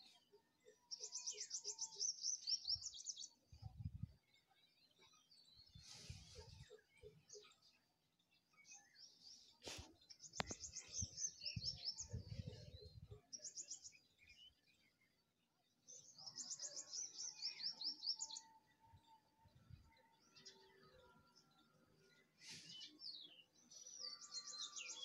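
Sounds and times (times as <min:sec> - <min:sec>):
small birds trilling: 0:00.8 - 0:15.3.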